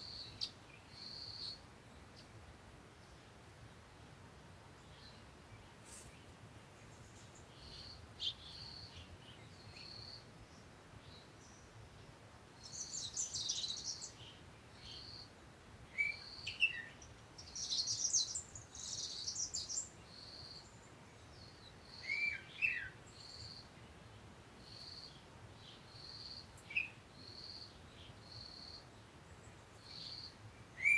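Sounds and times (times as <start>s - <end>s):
birds chirping and twittering: 4.8s - 11.8s, 12.6s - 15.3s, 15.9s - 23.6s, 24.7s - 30.9s.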